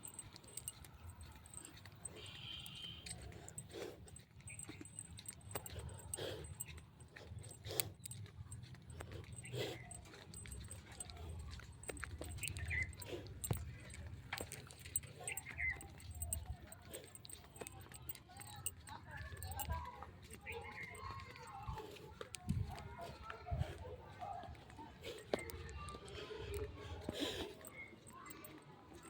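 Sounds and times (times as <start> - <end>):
dog barking: 0.0 - 3.9.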